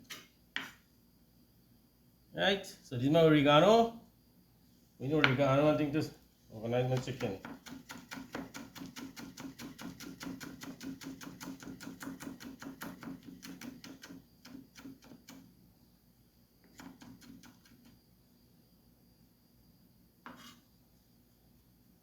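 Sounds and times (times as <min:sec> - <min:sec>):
knife chopping on cutting board: 0:06.9 - 0:15.4.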